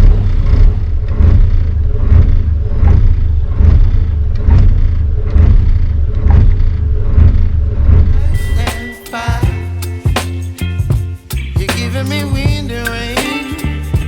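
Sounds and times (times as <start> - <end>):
boat engine rumbling: 0.0 - 13.2.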